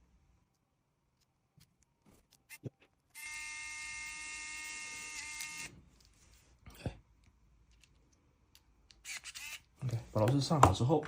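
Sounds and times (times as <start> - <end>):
electric screwdriver whine: 3.2 - 5.7.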